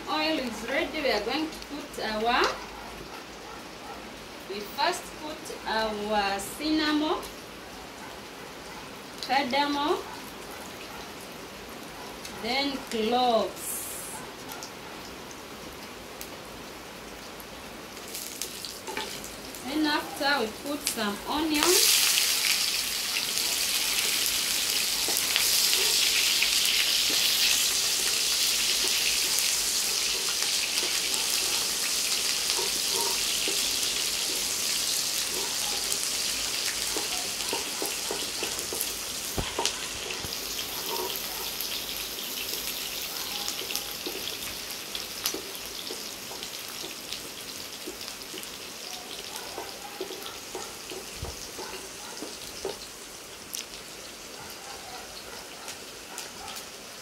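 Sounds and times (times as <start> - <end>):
onions sizzling in hot oil: 0.0 - 2.6, 4.2 - 7.6, 8.6 - 14.2, 15.0 - 57.0
wooden spoon knocking on pan: 36.9 - 40.2.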